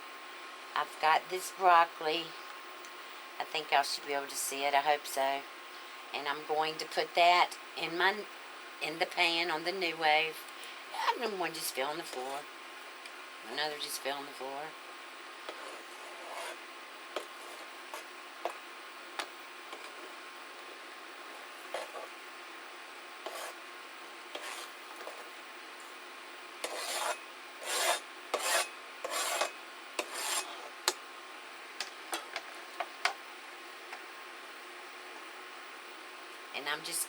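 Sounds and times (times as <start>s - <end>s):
broccoli scraping in a pan: 15.4s - 18.6s, 21.3s - 22.2s, 23.2s - 23.6s, 24.3s - 25.4s, 26.6s - 30.7s.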